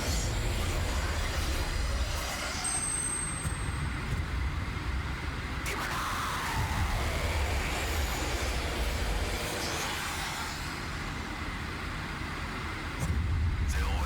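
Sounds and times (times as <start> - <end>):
howling wind with deep rumble: 3.8 - 9.4.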